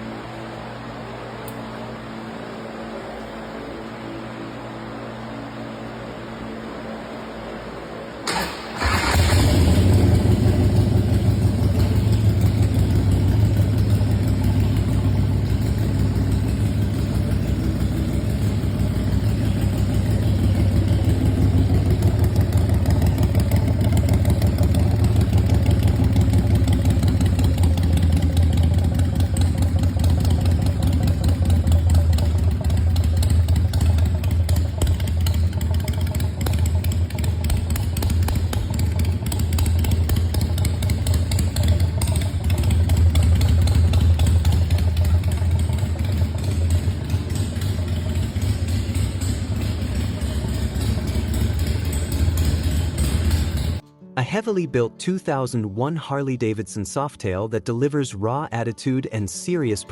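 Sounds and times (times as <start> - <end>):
motorcycle engine idling: 8.3 - 53.8.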